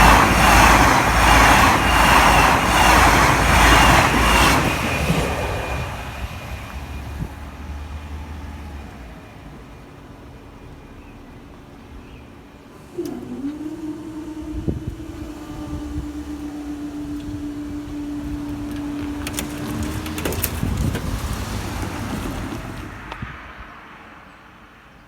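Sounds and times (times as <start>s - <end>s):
train wheel clicks: 0.0s - 7.4s, 12.8s - 23.3s
train rushing past: 0.0s - 25.0s.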